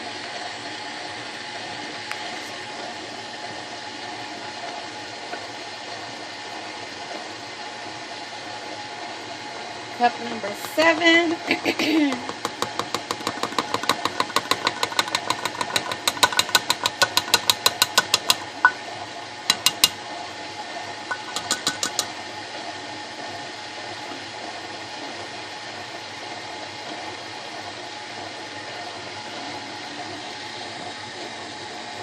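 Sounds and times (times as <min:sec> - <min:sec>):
stand mixer motor humming: 0:01.0 - 0:32.0
fast regular clicking: 0:10.6 - 0:18.8, 0:19.5 - 0:20.0, 0:21.1 - 0:22.1.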